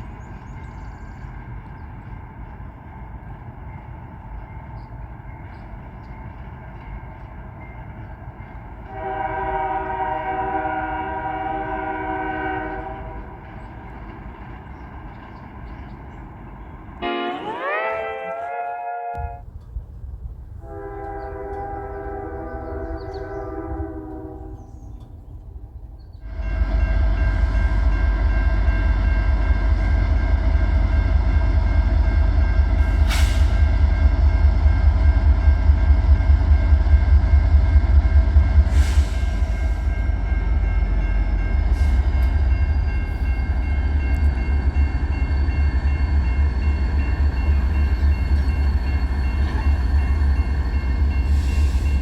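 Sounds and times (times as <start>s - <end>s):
locomotive horn: 8.8s - 13.6s, 17.0s - 19.5s, 20.6s - 25.0s, 26.2s - 36.0s
diesel engine rumbling: 19.4s - 26.8s
wheels clicking on rail: 19.4s - 29.2s.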